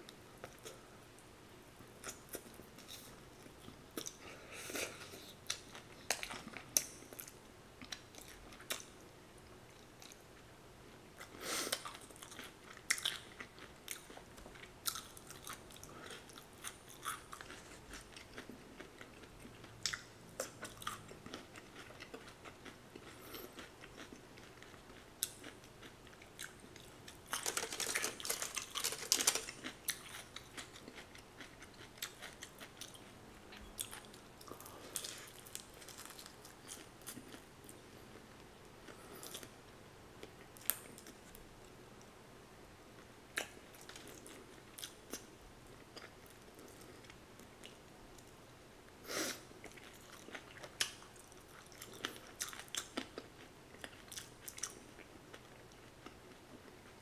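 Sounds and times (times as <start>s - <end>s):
chewing crispy fried chicken: 11.2s - 37.8s, 49.6s - 57.0s
crust crackling: 26.7s - 31.0s, 34.4s - 37.8s.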